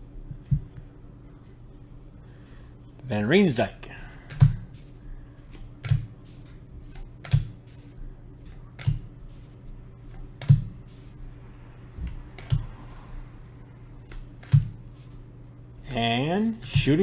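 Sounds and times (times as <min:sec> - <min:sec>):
cards tapping on a table: 0:04.3 - 0:04.8, 0:05.5 - 0:07.7, 0:08.4 - 0:09.5, 0:10.1 - 0:11.0, 0:12.0 - 0:12.8, 0:14.0 - 0:15.1.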